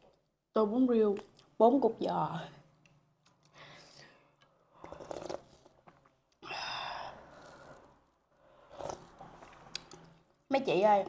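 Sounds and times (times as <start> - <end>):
breathy eating mouth sound: 4.4 - 5.8.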